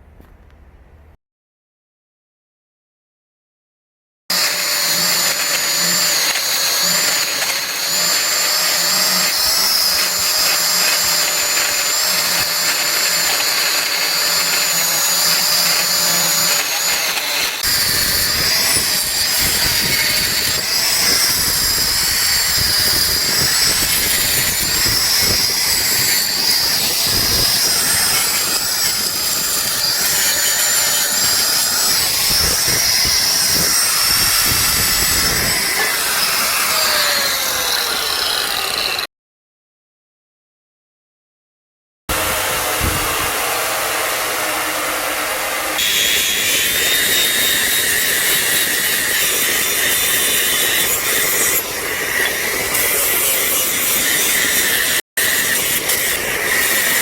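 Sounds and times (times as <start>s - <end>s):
power tool whining: 4.3s - 39.1s, 42.1s - 57.0s.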